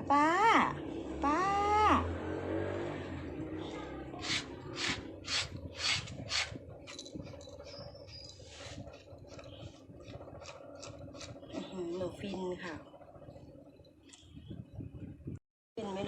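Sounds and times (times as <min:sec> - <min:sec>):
scratching through cat fur: 0:08.3 - 0:09.4.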